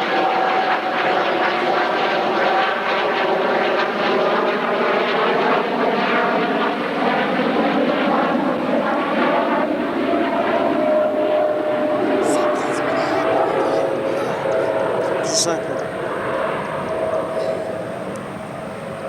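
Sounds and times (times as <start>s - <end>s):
aircraft engine drone: 0.0s - 19.0s.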